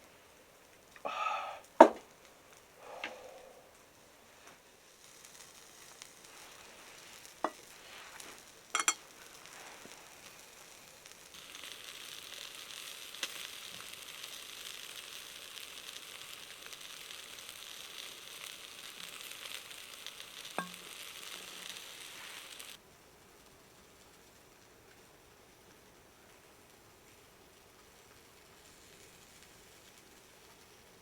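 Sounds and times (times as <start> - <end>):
meat sizzling on a grill: 0.0 - 31.0
sharp pops: 1.7 - 2.2, 20.5 - 21.1.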